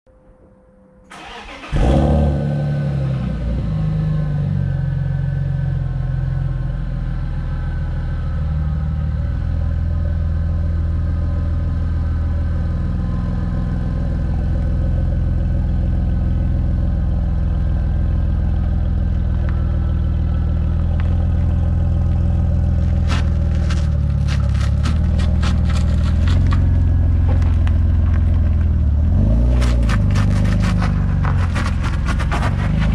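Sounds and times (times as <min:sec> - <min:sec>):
car engine starting and idling: 0:01.1 - 0:32.9.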